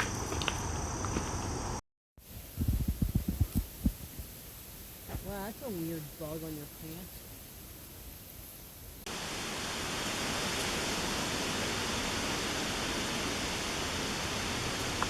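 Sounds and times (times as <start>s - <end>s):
creek water rushing: 9.1s - 15.0s.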